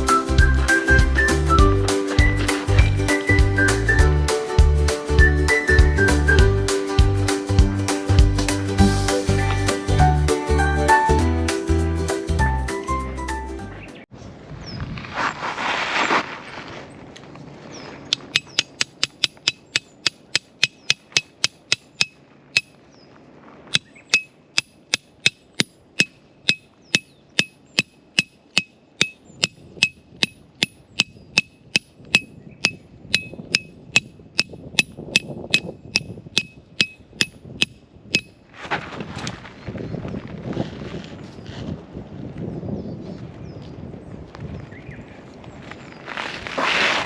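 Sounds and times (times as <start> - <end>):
tent peg being hammered: 18.2 - 22.7, 23.8 - 38.3.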